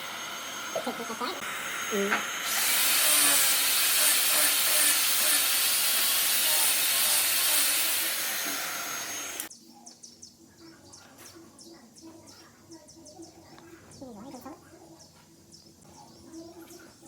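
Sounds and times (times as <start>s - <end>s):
workshop tool hissing rush: 0.0s - 9.5s.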